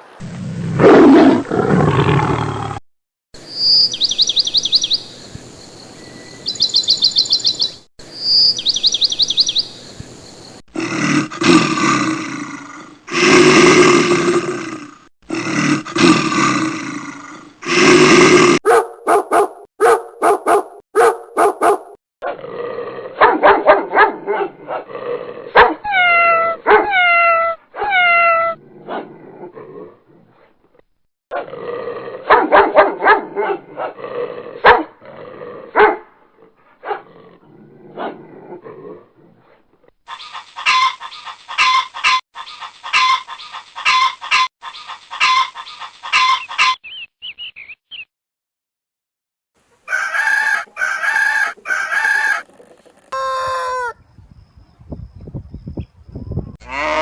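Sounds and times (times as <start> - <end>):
low animal roar: 0.2 - 2.8, 10.7 - 18.6, 22.2 - 23.2, 24.6 - 25.6, 28.3 - 30.4, 31.3 - 32.3, 33.6 - 35.8, 36.4 - 39.4, 56.6 - 57.0
dog barks and yelps: 18.6 - 22.0, 23.2 - 24.9, 25.5 - 29.1, 32.3 - 34.0, 34.6 - 34.9, 35.8 - 36.1, 36.8 - 37.1, 42.9 - 46.9.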